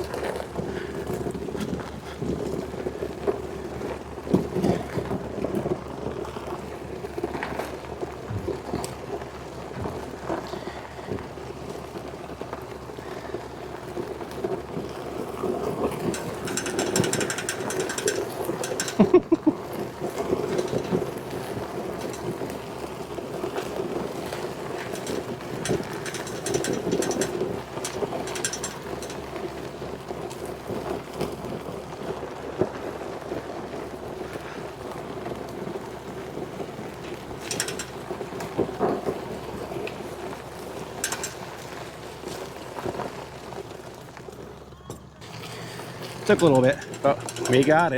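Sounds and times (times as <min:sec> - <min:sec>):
vehicle engine under load: 0:00.0 - 0:47.9
sharp metallic knocks: 0:16.1 - 0:19.2, 0:20.4 - 0:21.3, 0:24.8 - 0:29.3, 0:37.1 - 0:38.0, 0:41.0 - 0:41.5, 0:46.3 - 0:47.9.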